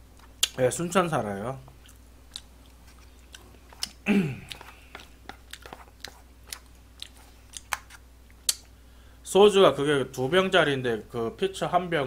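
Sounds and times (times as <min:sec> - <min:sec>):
wet chewing of noodles: 0:01.7 - 0:08.6.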